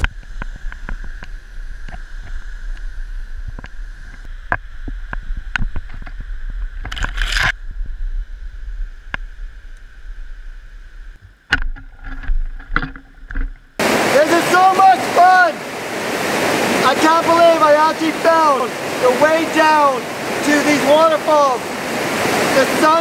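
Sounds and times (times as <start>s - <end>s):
waterfall rushing: 13.8s - 23.0s.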